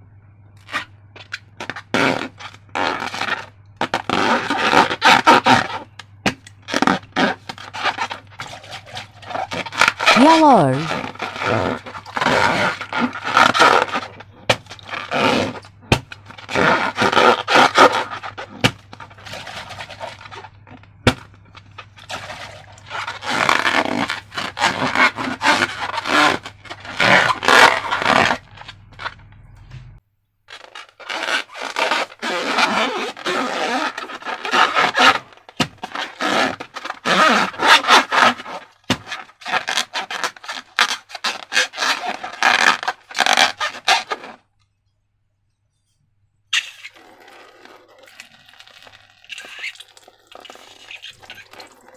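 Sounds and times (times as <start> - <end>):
low background hum: 0.0 - 39.7
wet rubbing and scraping: 0.6 - 6.0, 6.6 - 29.3, 30.5 - 44.5, 46.5 - 51.9.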